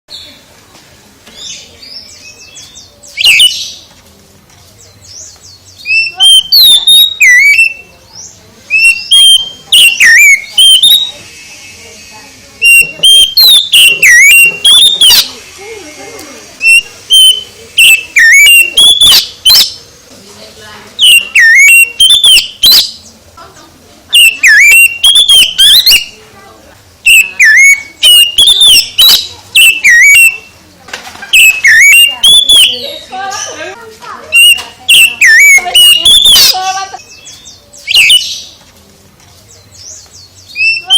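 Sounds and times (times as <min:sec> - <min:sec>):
magpie-robin singing whistled phrases: 0:01.4 - 0:03.8, 0:04.8 - 0:15.6, 0:16.6 - 0:19.8, 0:21.0 - 0:23.1, 0:24.1 - 0:26.2, 0:27.0 - 0:30.6, 0:31.3 - 0:33.7, 0:34.3 - 0:38.6, 0:39.6 - 0:40.9.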